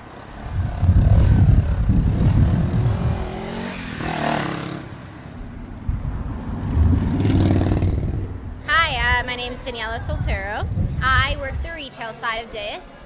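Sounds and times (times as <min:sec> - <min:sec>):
motorcycle engine revving: 0:00.0 - 0:05.1, 0:05.9 - 0:08.6.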